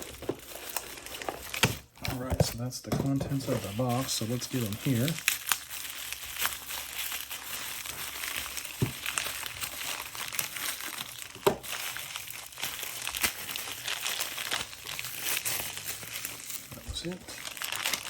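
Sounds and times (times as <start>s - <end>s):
packing material crinkling: 0.0s - 18.0s.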